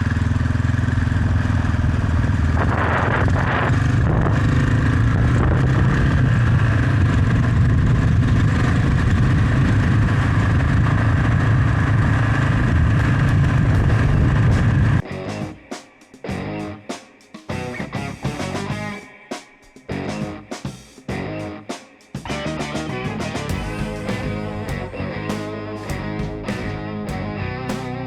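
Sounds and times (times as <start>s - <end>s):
motorcycle engine cruising: 0.0s - 15.0s, 22.2s - 28.0s
wind and road noise: 0.0s - 15.1s.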